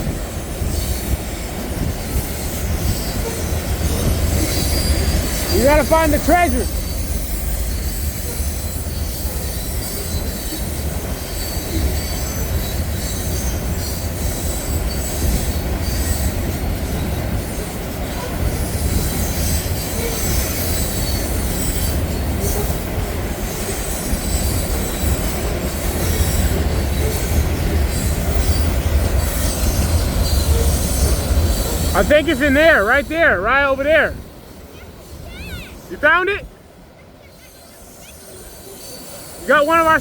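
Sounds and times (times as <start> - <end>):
train cars rumbling past: 0.0 - 40.0
wheel squeal: 2.1 - 31.9.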